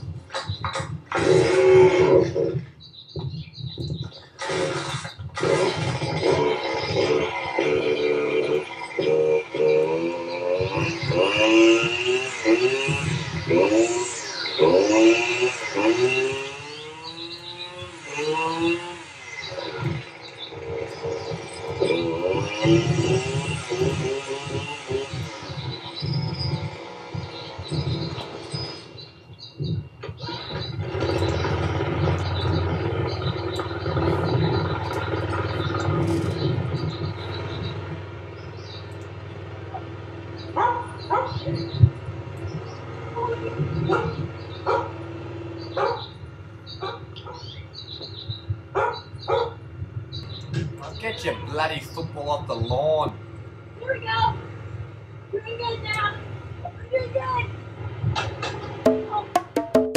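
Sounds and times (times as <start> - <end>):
lawnmower engines revving: 0.0 - 59.9
faint bird chirps: 1.9 - 5.3, 6.1 - 39.0, 39.7 - 45.0, 45.6 - 52.7
dog barking: 40.6 - 41.6, 43.4 - 45.0, 45.7 - 46.2, 46.8 - 47.6, 48.7 - 49.6.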